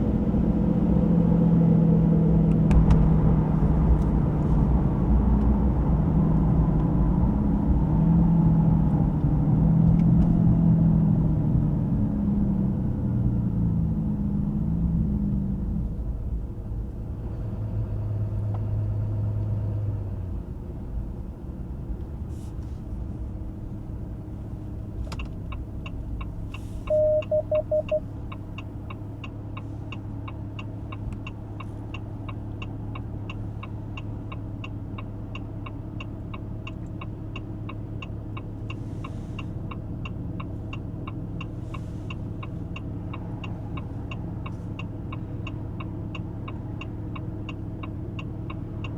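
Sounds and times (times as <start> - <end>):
diesel engine running: 10.6 - 33.3
turn-signal ticking: 24.6 - 38.8, 39.6 - 48.9
quick beeps: 26.9 - 28.1.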